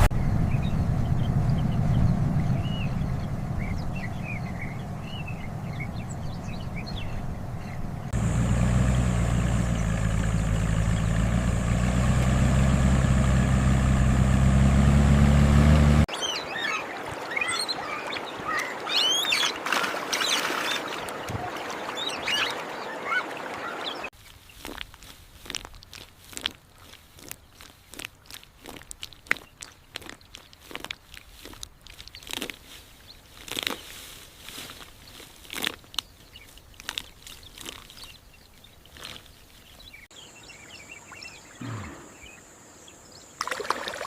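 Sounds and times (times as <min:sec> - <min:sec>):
low rumble: 0:00.0 - 0:16.1
steady engine drone: 0:00.0 - 0:16.1, 0:41.6 - 0:42.3
birds chirping: 0:00.0 - 0:24.8, 0:27.1 - 0:44.0
bird calls: 0:00.5 - 0:11.8, 0:16.1 - 0:24.8, 0:29.1 - 0:44.0.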